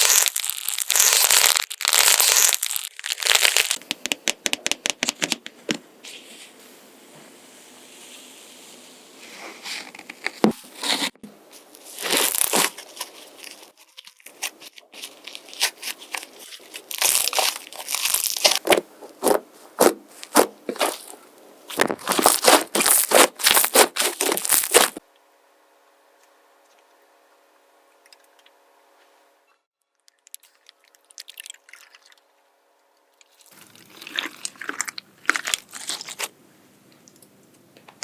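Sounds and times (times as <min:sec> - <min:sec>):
slime crackling and popping: 0:00.0 - 0:04.0, 0:12.0 - 0:19.4, 0:21.7 - 0:25.0.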